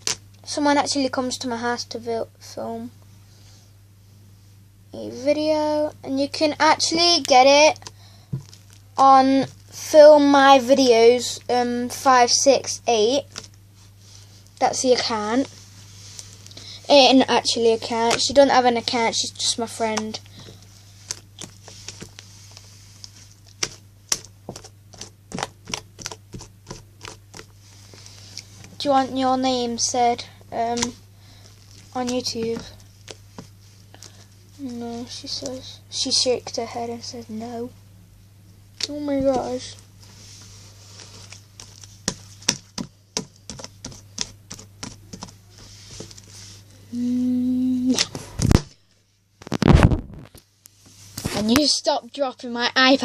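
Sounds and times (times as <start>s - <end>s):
person saying no: 46.9s - 48.1s.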